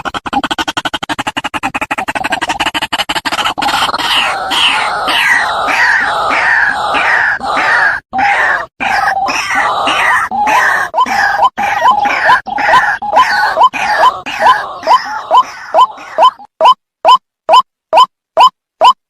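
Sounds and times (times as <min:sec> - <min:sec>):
waterhens calling: 0:03.4 - 0:16.5.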